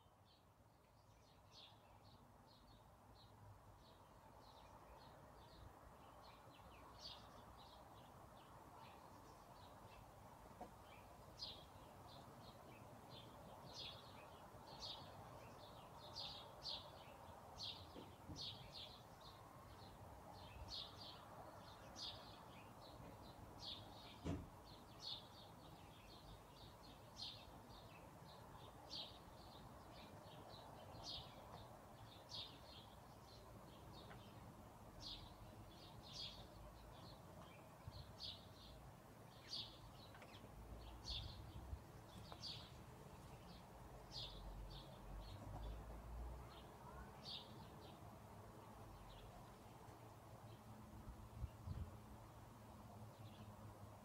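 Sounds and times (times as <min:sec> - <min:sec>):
birds chirping faintly: 0:00.0 - 0:54.0
soft steady hiss: 0:00.0 - 0:54.0.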